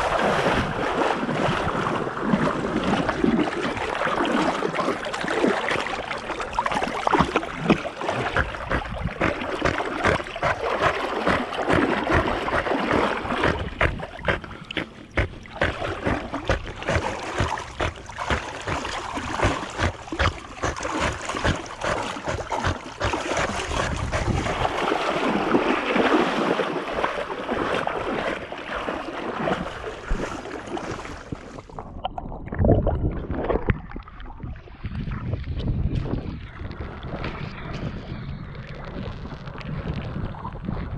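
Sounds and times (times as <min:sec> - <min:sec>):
water splashing around kayak: 0:00.0 - 0:40.9
wind buffeting microphone: 0:08.2 - 0:25.8, 0:31.2 - 0:40.9.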